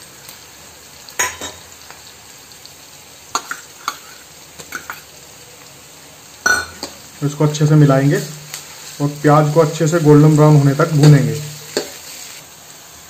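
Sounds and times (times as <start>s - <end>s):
onions sizzling in hot oil: 0.0s - 13.0s
ladle scraping a pan: 11.0s - 12.4s.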